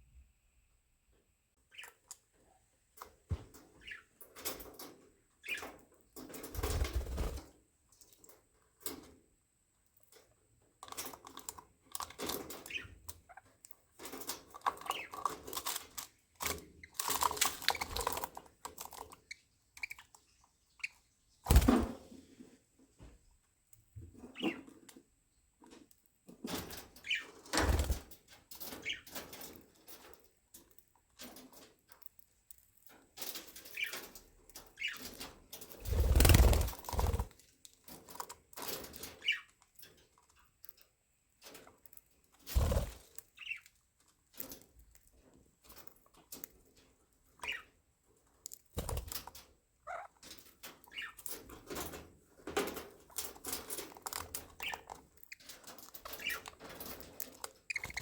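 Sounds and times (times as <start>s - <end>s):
budgerigars chirping: 3.8s - 4.1s, 47.4s - 47.7s, 57.7s - 58.0s
wings flapping: 6.5s - 7.5s, 21.4s - 22.0s, 27.5s - 28.1s, 35.8s - 37.4s, 42.4s - 43.1s
small clicks and scratches: 9.9s - 21.0s, 23.7s - 58.0s.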